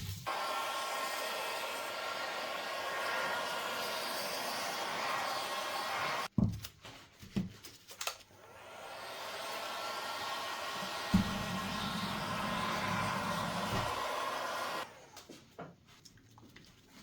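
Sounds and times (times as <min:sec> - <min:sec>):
electric blower whirring: 0:00.3 - 0:06.3, 0:08.4 - 0:15.1.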